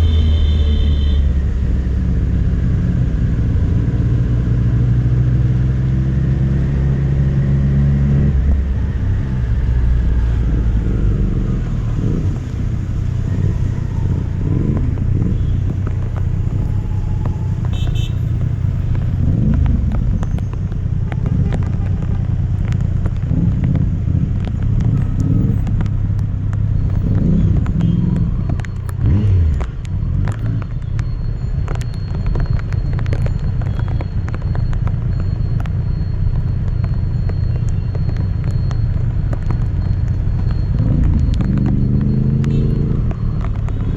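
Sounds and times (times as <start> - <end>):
wind and road noise: 0.0 - 43.9
motorcycle engine revving: 1.5 - 30.8, 39.6 - 43.9.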